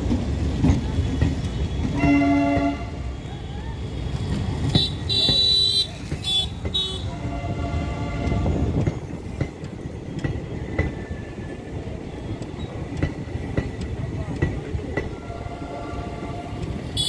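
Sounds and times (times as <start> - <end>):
train coaches rumbling past: 0.0 - 17.0
train horn toot: 1.6 - 3.1, 4.8 - 8.7
wheels clacking over rail joints: 4.0 - 17.0.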